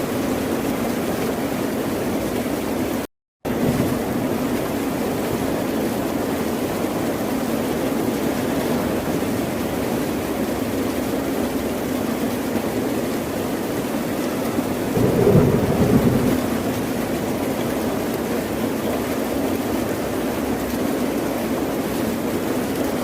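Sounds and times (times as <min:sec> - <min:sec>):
ocean surf rushing: 0:14.8 - 0:18.4.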